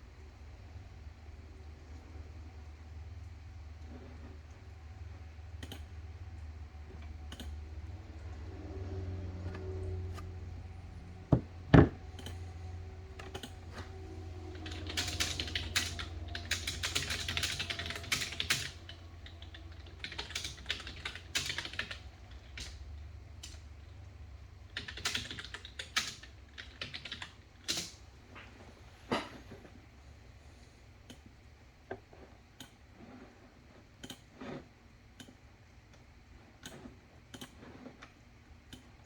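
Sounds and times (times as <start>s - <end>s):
typing on keyboard: 5.6s - 5.9s, 7.3s - 7.6s, 13.2s - 24.0s, 24.6s - 28.0s
low hum: 6.4s - 21.2s.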